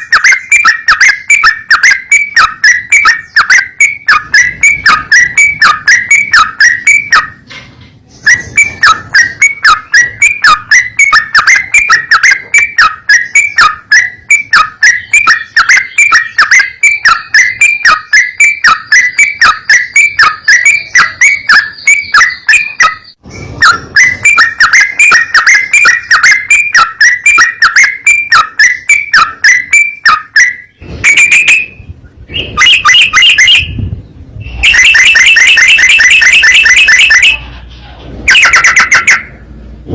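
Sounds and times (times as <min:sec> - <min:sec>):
bird whistling call: 0:00.0 - 0:07.4, 0:08.1 - 0:37.6.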